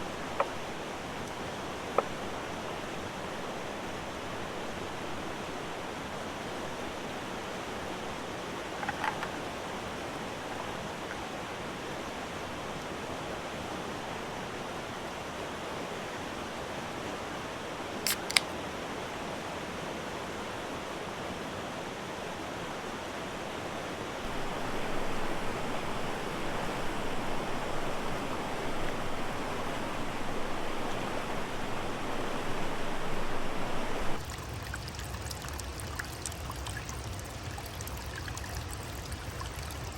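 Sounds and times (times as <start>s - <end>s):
river water rushing: 0.0s - 35.0s
sharp click: 18.1s - 18.5s.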